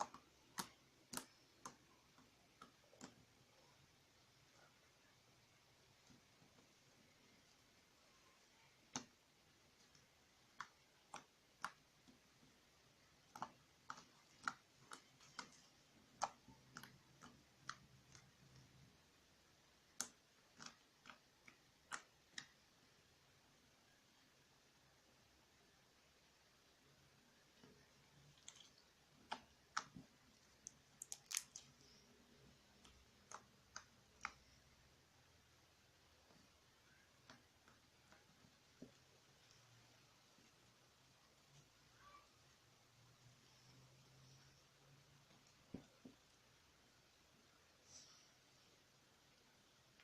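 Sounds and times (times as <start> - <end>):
slime clicking and popping: 13.2 - 18.8, 28.4 - 32.0.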